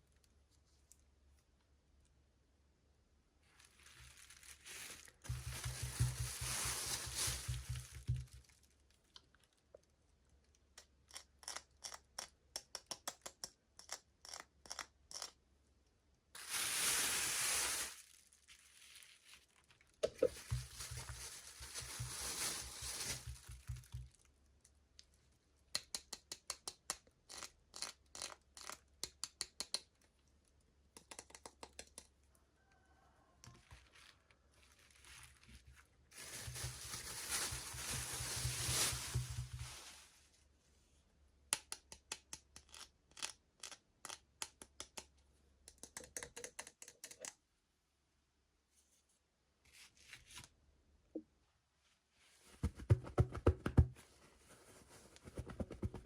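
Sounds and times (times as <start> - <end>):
packaging tearing and crinkling: 3.5 - 8.5, 16.4 - 23.9, 33.8 - 40.0.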